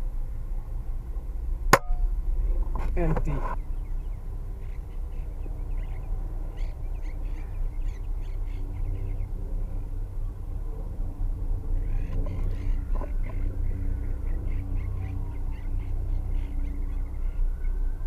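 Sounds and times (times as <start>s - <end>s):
steady low hum: 0.0s - 18.0s
parakeets chirping: 3.2s - 9.4s.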